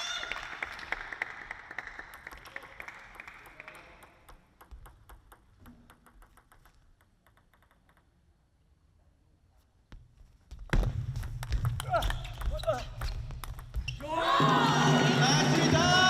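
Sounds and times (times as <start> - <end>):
spectators applauding: 0.0 - 4.2.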